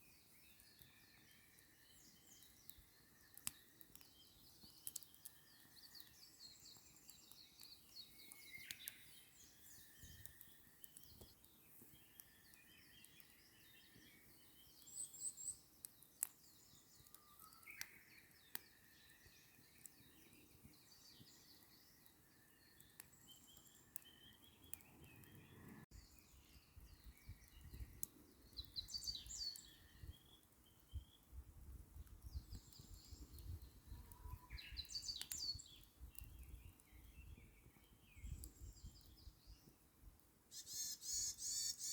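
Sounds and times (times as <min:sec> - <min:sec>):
small birds chirping: 0:00.0 - 0:41.9
campfire crackling: 0:00.1 - 0:40.5.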